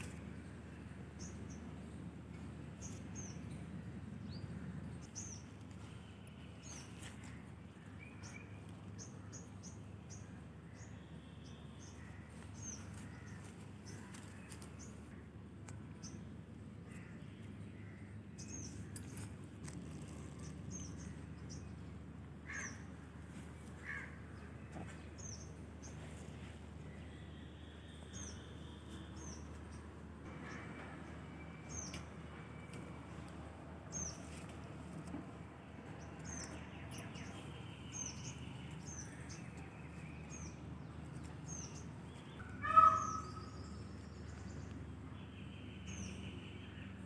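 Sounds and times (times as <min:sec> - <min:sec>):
birds chirping: 0:00.0 - 0:47.0
lower bird calls: 0:41.5 - 0:44.7.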